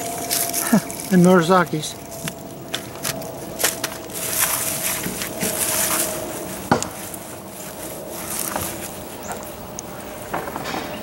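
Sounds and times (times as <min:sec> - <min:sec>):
rustling and scraping soil: 0:00.0 - 0:11.0.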